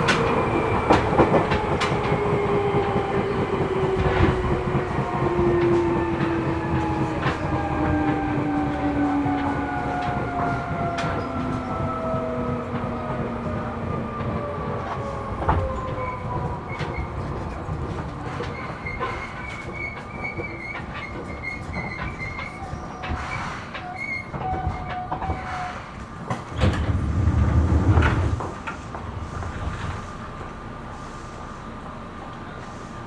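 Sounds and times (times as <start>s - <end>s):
rail-joint clicks: 0.0s - 33.0s
train rolling noise: 0.0s - 33.0s
faint wheel squeal: 18.4s - 25.9s.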